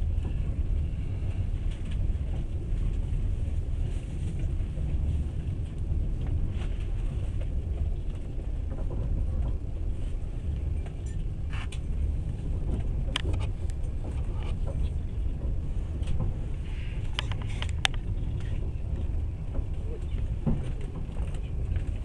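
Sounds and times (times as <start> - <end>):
train wheels rumbling on rails: 0.0 - 22.0
sharp clicks and rattles: 12.7 - 16.3, 17.0 - 22.0.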